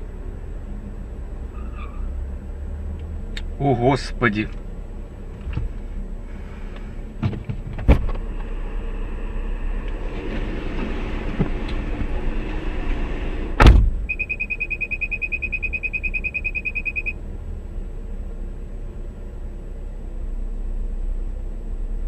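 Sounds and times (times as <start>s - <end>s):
road and engine noise: 0.0s - 22.0s
car collision bang: 13.6s - 14.1s
rapid high electronic beeping: 14.1s - 17.2s.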